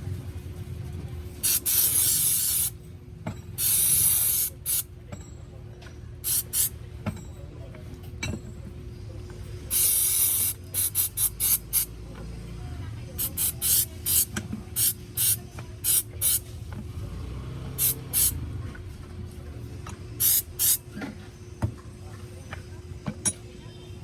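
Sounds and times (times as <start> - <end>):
aerosol spray hissing: 1.4 - 2.7, 3.6 - 4.8, 6.3 - 6.7, 9.7 - 11.9, 13.2 - 16.4, 17.8 - 18.4, 20.2 - 20.8
short aerosol squirts: 1.4 - 2.7, 9.7 - 11.9, 13.2 - 16.4, 17.8 - 18.4.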